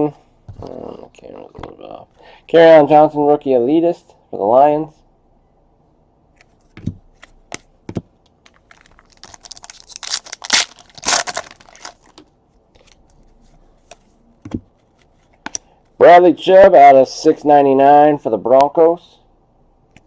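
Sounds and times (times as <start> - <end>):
plastic wrapping crinkling and tearing: 8.5 - 12.2.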